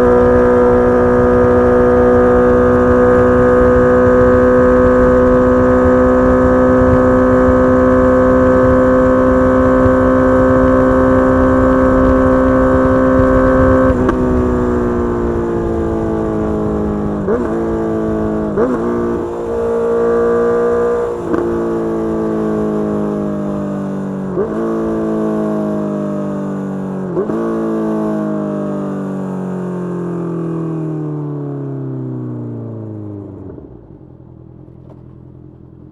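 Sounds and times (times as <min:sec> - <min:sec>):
engine rev blips on downshifts: 0:00.0 - 0:28.9
motorcycle engine high revving: 0:00.0 - 0:31.0
wind rush: 0:00.8 - 0:23.0.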